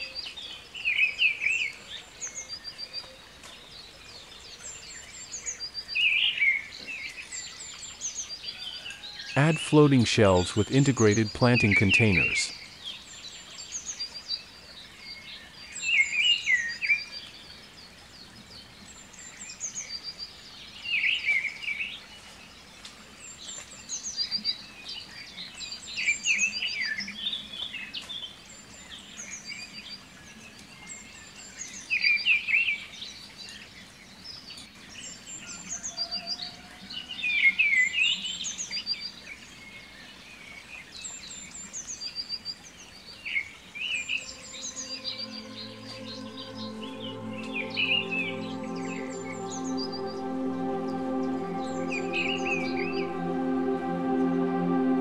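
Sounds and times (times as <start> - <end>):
bird repeating chirpy phrase: 9.4 - 12.5
faint high chirps: 43.9 - 55.0.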